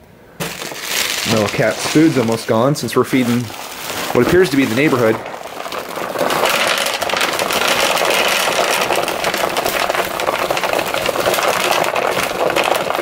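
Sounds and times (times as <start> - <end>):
dry kibble poured into dish: 0.4 - 13.0.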